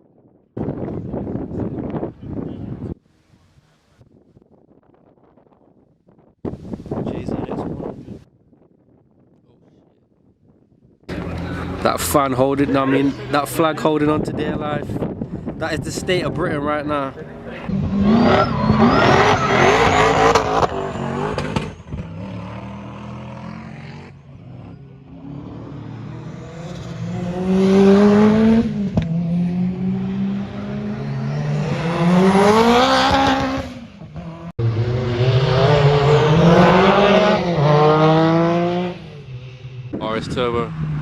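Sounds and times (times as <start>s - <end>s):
car engines revving hard: 17.2s - 41.0s.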